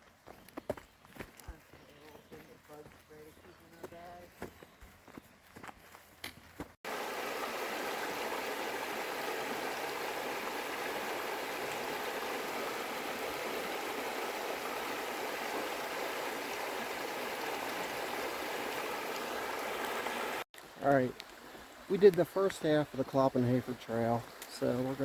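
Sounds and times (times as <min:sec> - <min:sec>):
creek water rushing: 0:06.8 - 0:25.0.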